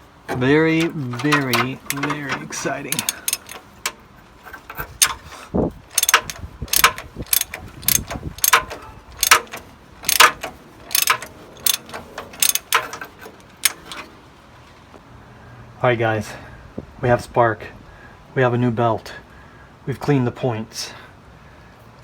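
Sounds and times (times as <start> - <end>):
hand tool ratcheting: 0.0 - 14.1.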